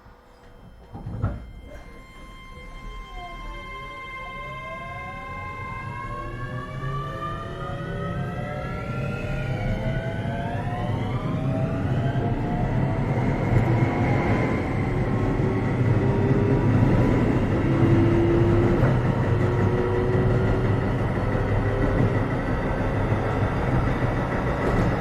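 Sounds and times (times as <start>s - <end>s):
traction motors whining: 0.0s - 25.0s
wheels rumbling on rail: 5.2s - 25.0s.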